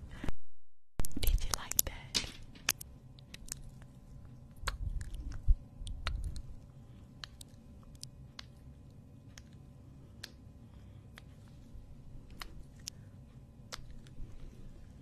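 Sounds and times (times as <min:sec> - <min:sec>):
chewing and biting: 0:03.2 - 0:06.5
sharp mouth clicks: 0:04.5 - 0:06.5, 0:07.2 - 0:08.6.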